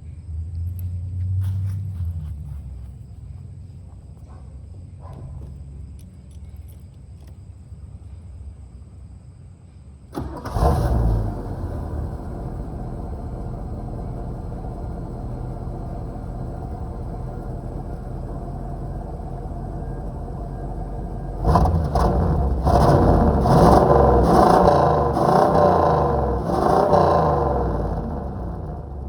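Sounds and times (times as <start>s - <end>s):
car engine revving: 10.2s - 29.0s.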